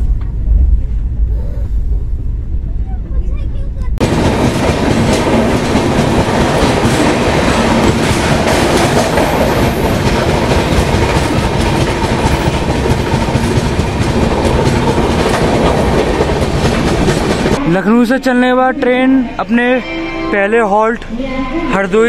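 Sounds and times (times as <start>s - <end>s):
train wheels clattering over joints: 4.0s - 17.6s.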